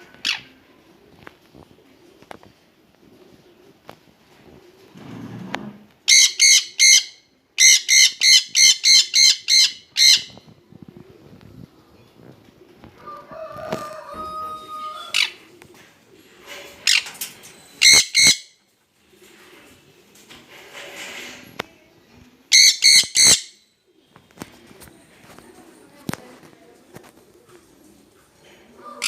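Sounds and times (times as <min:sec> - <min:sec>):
parrots screeching: 0:22.6 - 0:23.6.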